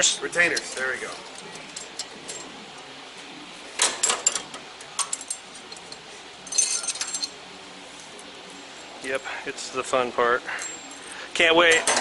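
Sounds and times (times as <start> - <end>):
small metal parts clinking: 5.0 - 7.4.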